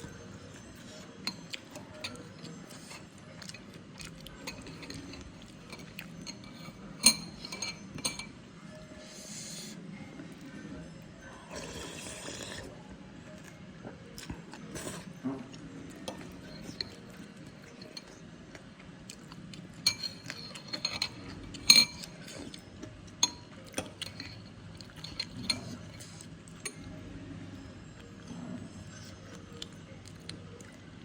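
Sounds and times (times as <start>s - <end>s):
spoon clinking against bowl: 4.3s - 8.4s, 19.8s - 26.9s.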